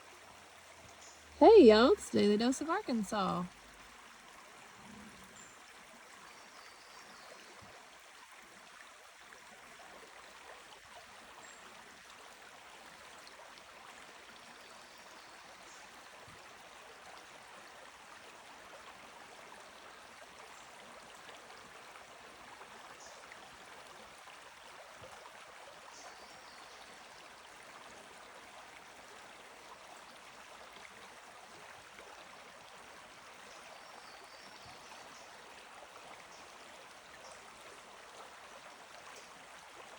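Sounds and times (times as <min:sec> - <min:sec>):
creek water flowing: 0:00.0 - 0:39.9.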